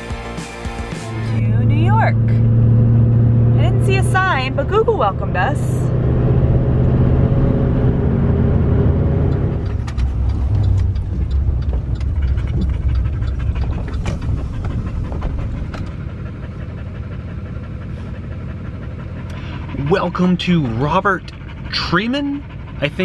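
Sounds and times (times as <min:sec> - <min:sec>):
vehicle engine humming: 0:00.0 - 0:23.0
light ticks and crackles: 0:09.3 - 0:15.9
dog panting: 0:09.7 - 0:23.0.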